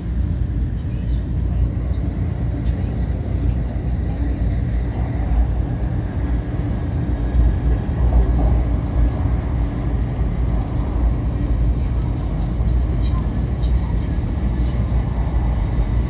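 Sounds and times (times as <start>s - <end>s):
train cabin rumble: 0.0s - 16.0s.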